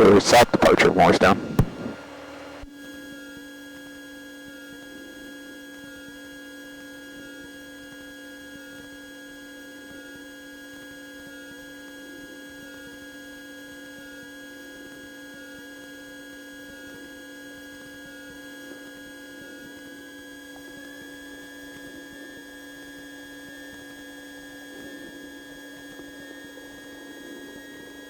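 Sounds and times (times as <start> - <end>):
airplane engine and propeller drone: 0.0 - 2.6.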